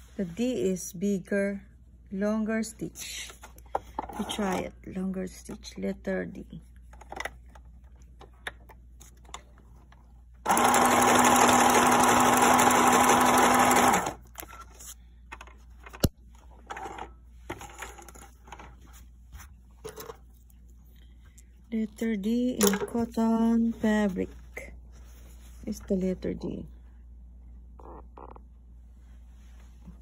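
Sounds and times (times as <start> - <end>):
sewing machine humming: 10.4 - 14.2.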